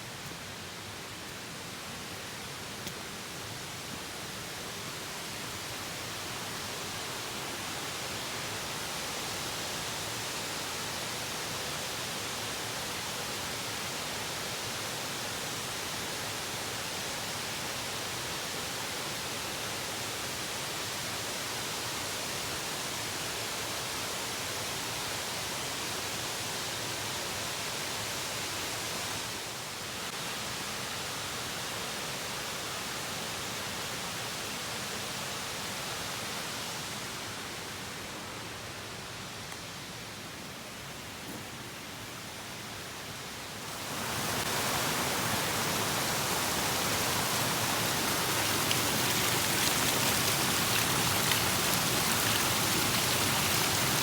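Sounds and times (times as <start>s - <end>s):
falling water rushing: 43.3s - 54.0s.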